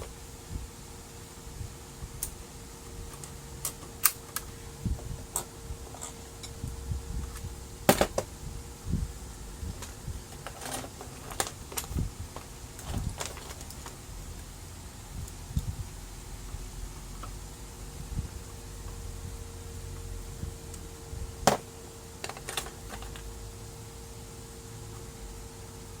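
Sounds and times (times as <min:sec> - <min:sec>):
faint steady hum: 0:00.0 - 0:26.0
plastic parts clicking and tapping: 0:21.5 - 0:23.3.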